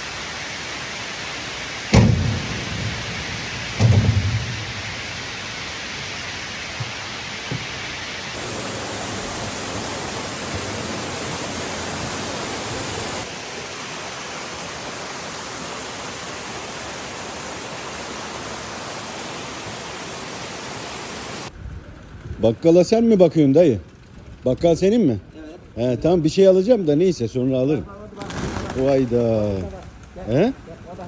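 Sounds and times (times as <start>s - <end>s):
falling water rushing: 0.0s - 21.5s, 27.9s - 31.0s.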